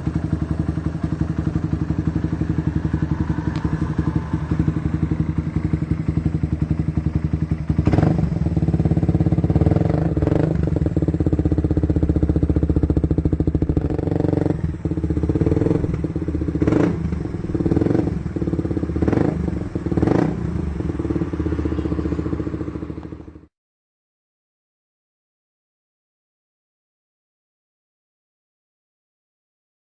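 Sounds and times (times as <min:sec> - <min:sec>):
motorcycle engine idling: 0:00.0 - 0:23.5
engine revving on throttle blips: 0:01.4 - 0:06.6, 0:07.7 - 0:23.3.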